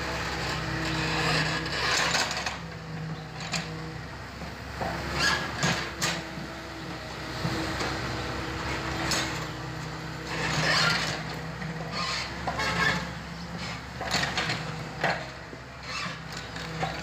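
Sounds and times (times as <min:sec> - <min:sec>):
excavator engine running: 0:00.0 - 0:17.0
sharp knocks and scrapes: 0:00.5 - 0:02.6, 0:10.2 - 0:17.0.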